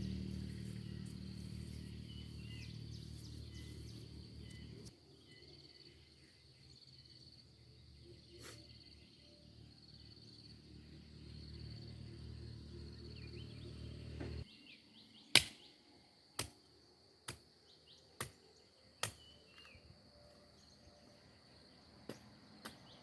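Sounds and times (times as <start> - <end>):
bird chirps: 0.0 - 10.5.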